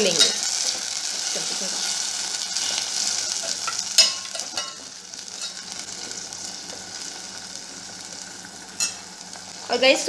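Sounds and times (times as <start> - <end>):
vegetables sizzling in a pot: 0.0 - 10.0
spoon clinking against pot: 3.6 - 4.8, 8.8 - 9.0.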